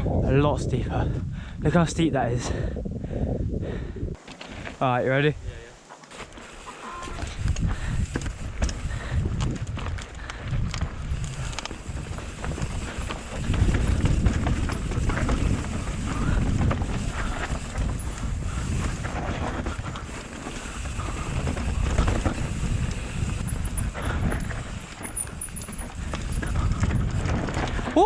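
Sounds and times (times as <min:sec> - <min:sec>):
wind buffeting microphone: 0:00.0 - 0:04.2, 0:07.1 - 0:28.0
bike rattling over bumps: 0:06.0 - 0:28.0
tyres rumbling over dirt: 0:06.0 - 0:28.0.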